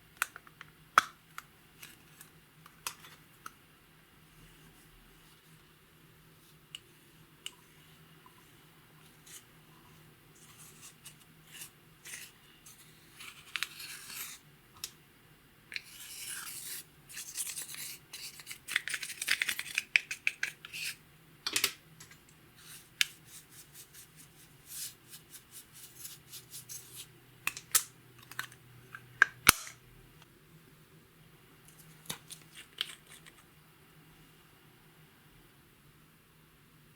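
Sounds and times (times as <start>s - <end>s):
scraping and rubbing slime: 7.4s - 14.4s, 15.8s - 21.0s, 22.6s - 27.1s.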